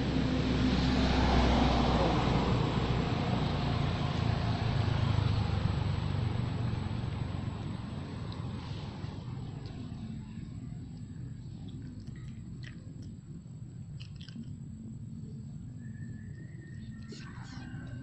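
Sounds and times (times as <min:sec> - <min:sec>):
motor vehicle passing by: 0:00.0 - 0:12.8.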